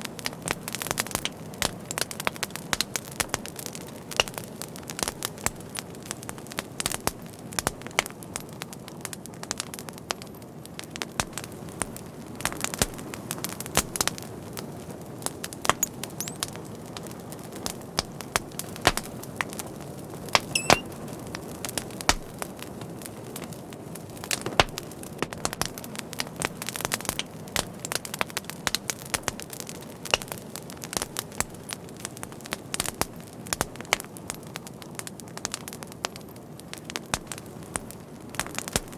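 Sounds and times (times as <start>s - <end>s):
wood fire crackling: 0.0s - 38.9s
high whistle: 20.5s - 20.8s.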